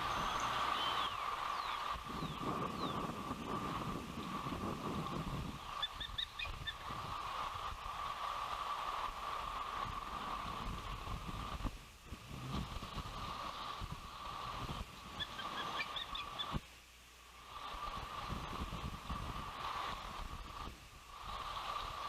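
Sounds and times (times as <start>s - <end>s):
ospreys whistled chirps: 0.0s - 3.2s, 5.6s - 6.8s, 15.2s - 16.6s
wind buffeting microphone: 0.0s - 16.6s, 17.6s - 22.0s.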